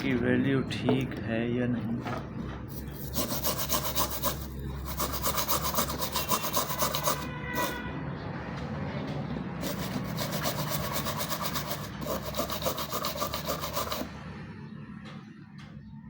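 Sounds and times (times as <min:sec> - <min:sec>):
brush scrubbing circuit board: 0:02.7 - 0:07.8, 0:09.6 - 0:14.1.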